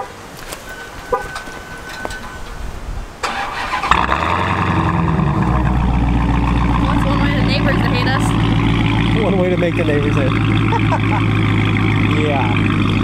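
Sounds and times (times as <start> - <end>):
car engine starting and idling: 3.2 - 13.0.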